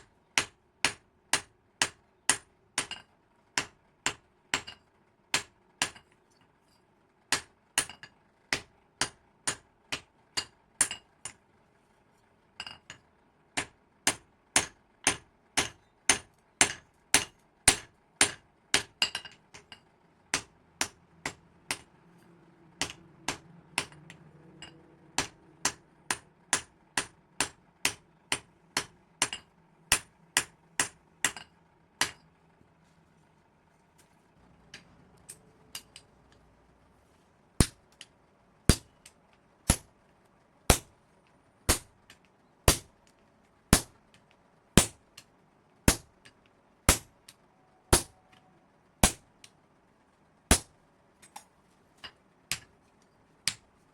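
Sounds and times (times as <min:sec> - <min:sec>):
faint low hum: 0:00.0 - 0:53.9
hammer striking hot metal on anvil: 0:00.4 - 0:04.8, 0:13.6 - 0:19.7, 0:20.3 - 0:21.9, 0:22.8 - 0:32.2, 0:38.7 - 0:39.1, 0:39.7 - 0:39.9, 0:40.7 - 0:40.9, 0:41.7 - 0:41.9, 0:42.7 - 0:42.9, 0:46.9 - 0:47.1, 0:47.9 - 0:48.2, 0:49.0 - 0:49.2.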